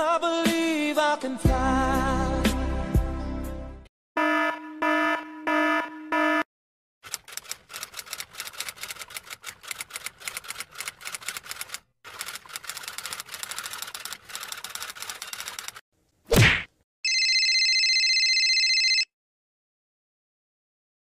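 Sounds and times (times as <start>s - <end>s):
electronic alarm beeping: 4.2s - 6.5s
typewriter keys clattering: 7.0s - 15.8s.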